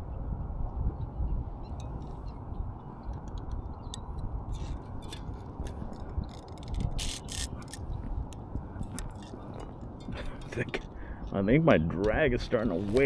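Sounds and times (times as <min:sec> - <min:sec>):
fishing reel drag clicking: 0:04.6 - 0:07.9.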